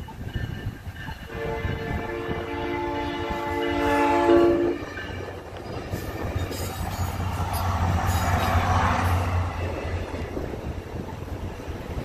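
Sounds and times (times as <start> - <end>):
train rumbling over crossing: 0.0 - 12.0
train horn chord: 1.3 - 5.4.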